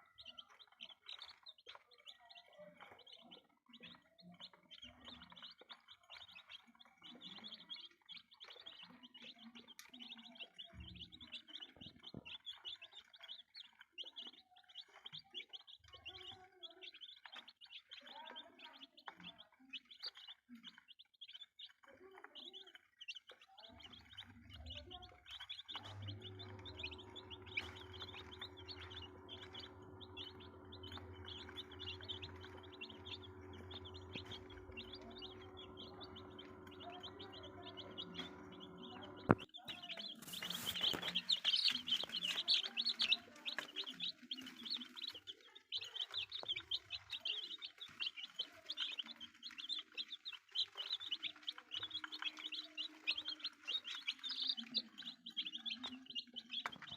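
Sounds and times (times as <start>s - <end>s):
chicks peeping: 0.0s - 56.9s
steady low hum: 25.8s - 39.5s.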